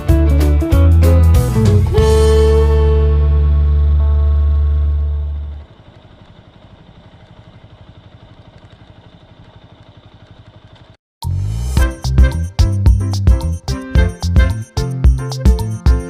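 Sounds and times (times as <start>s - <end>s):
guitar music: 0.0s - 5.6s, 11.8s - 16.0s
sustained music chord: 0.0s - 5.7s, 11.4s - 16.0s
motorcycle engine idling: 4.4s - 11.0s.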